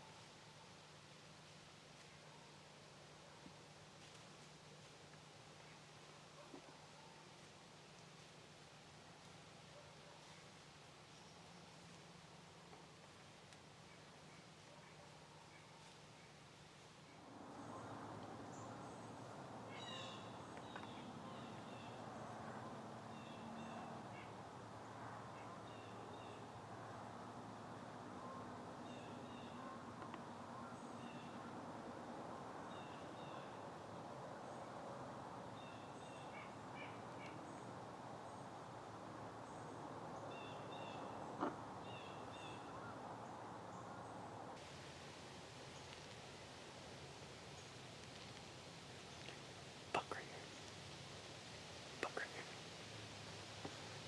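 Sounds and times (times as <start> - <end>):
small birds chirping: 39.4 - 54.0.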